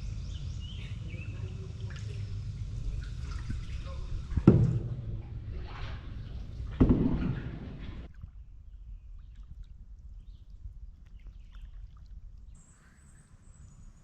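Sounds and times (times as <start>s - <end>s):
low rumble: 0.0s - 9.1s
water drips and taps: 1.8s - 8.2s.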